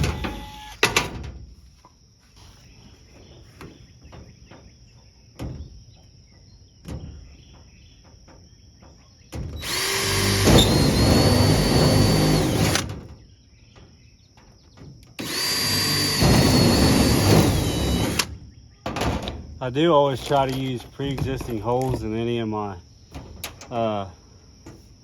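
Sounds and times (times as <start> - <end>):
power drill whining: 0.0 - 0.8, 9.6 - 12.9, 15.2 - 18.3.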